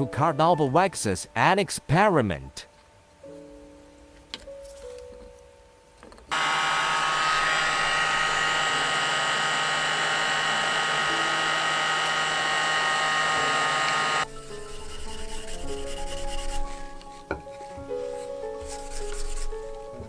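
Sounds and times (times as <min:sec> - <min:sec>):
handheld electric motor tool whining: 0:06.3 - 0:14.3.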